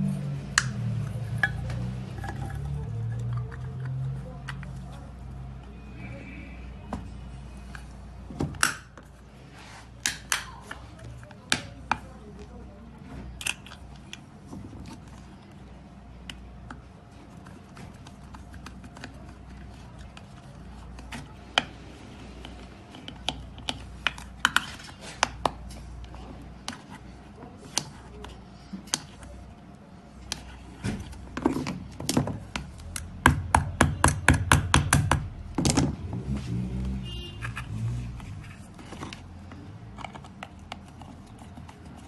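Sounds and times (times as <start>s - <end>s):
clicks and knocks of hand work: 22.4s - 27.1s.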